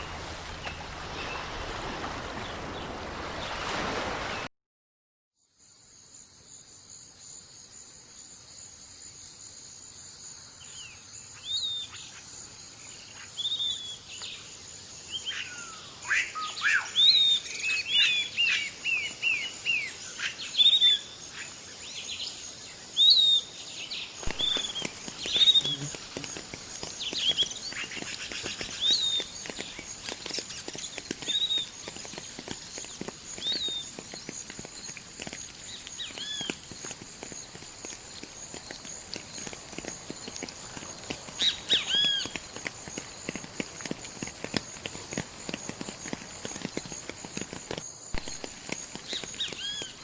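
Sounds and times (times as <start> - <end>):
birds chirping: 24.2 - 50.0
light pattering and clicking: 24.3 - 50.0.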